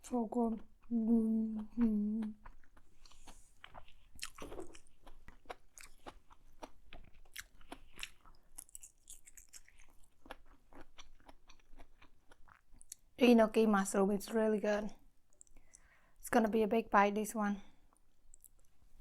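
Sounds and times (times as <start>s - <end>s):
person chewing noodles: 0.6s - 13.1s, 15.3s - 16.0s, 18.2s - 18.8s.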